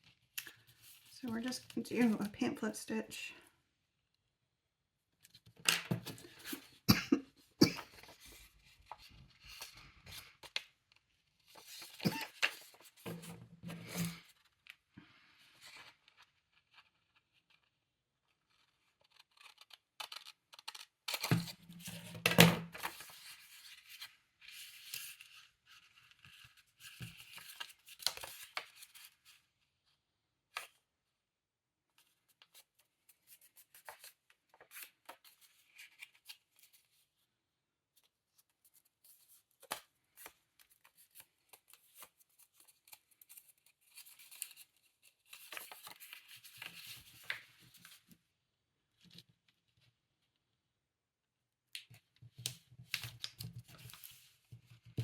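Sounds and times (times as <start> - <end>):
paper rustling and scraping: 11.4 - 14.6, 39.0 - 48.0, 52.9 - 54.6.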